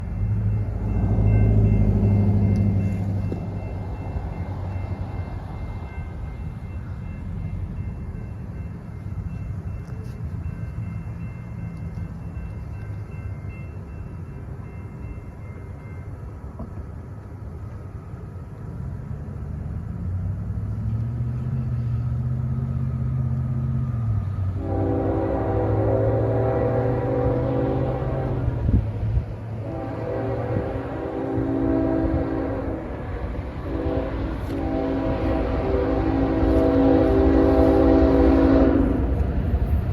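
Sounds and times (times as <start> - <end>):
diesel locomotive engine rumble: 0.0 - 39.9
train horn chord: 24.4 - 28.8, 29.5 - 39.2.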